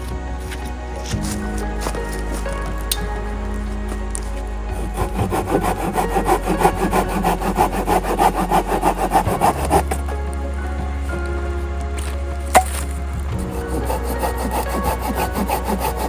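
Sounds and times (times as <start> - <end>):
hand saw cutting wood: 4.9 - 10.0, 13.4 - 16.0.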